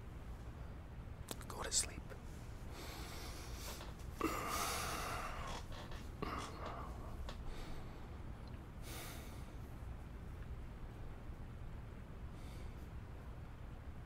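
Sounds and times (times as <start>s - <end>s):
steady low rumble: 0.0s - 14.0s
man breathing out: 2.7s - 8.2s.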